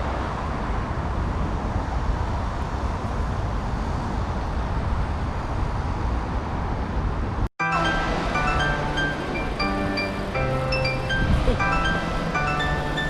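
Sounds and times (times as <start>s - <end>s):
road and wind noise: 0.0s - 13.0s
traffic: 0.0s - 13.0s
music with chiming notes: 7.6s - 13.0s.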